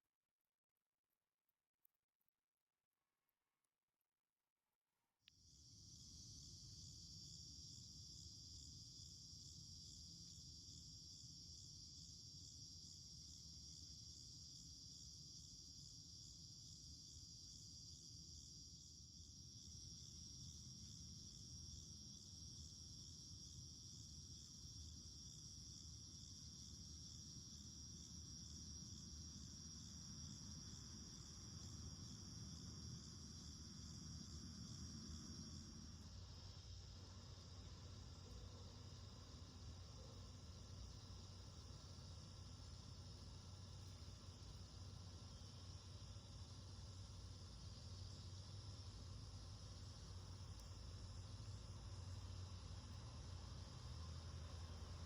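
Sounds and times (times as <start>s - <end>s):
cicadas buzzing: 19.5s - 55.0s.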